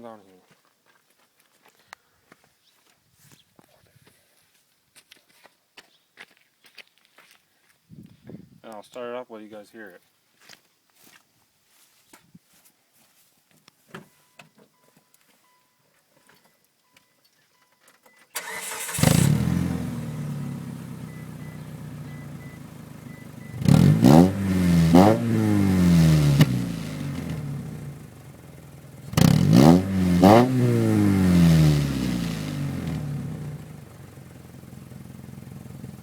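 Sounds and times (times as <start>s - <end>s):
starter cranking engine: 18.4s - 20.4s, 29.0s - 30.4s
car engine idling and revving: 18.4s - 36.0s.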